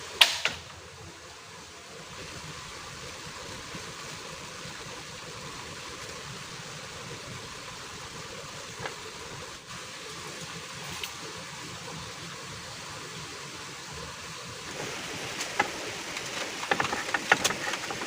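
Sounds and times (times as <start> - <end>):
heavy rain falling: 13.0 - 18.0.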